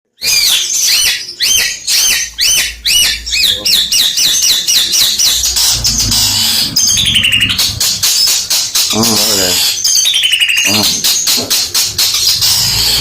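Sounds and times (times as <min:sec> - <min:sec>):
shrike singing: 0:00.3 - 0:10.6.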